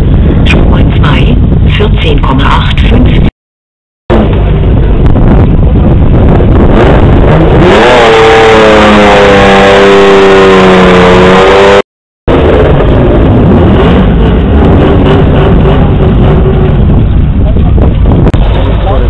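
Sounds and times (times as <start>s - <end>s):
loud low rumble: 0.0s - 3.3s, 4.1s - 19.0s
car engine revving: 4.1s - 19.0s.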